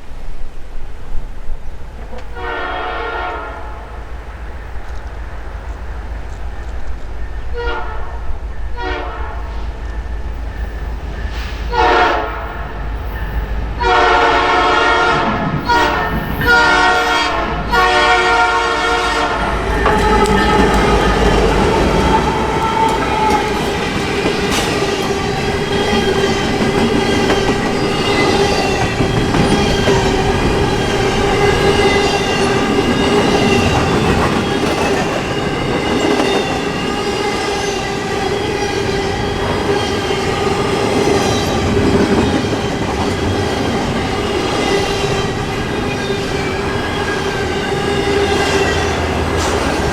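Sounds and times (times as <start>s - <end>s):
locomotive air horn blasts: 2.3s - 3.9s, 7.6s - 8.2s, 8.8s - 9.6s, 11.7s - 12.8s, 13.8s - 25.6s
train wheels clicking over rail joints: 19.4s - 49.9s
wheels squealing: 19.4s - 49.9s.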